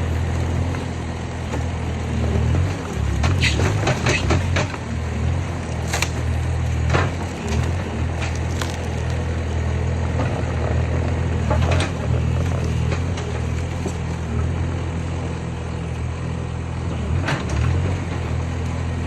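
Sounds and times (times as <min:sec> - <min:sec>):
skid steer engine running: 0:00.0 - 0:19.0
wooden frame cracking and splintering: 0:01.4 - 0:09.6, 0:11.6 - 0:14.2.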